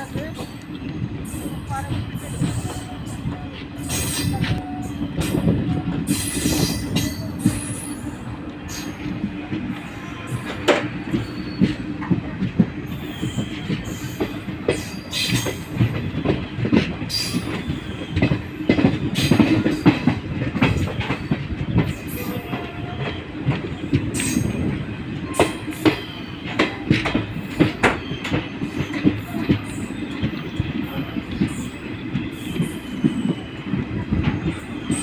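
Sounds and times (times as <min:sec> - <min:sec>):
passenger train rumbling: 0:00.0 - 0:35.0
wheels clattering on track: 0:10.2 - 0:35.0.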